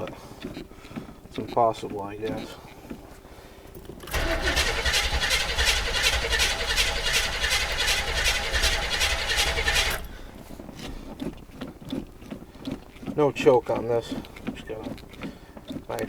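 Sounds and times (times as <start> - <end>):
starter motor cranking engine: 3.9 - 10.7.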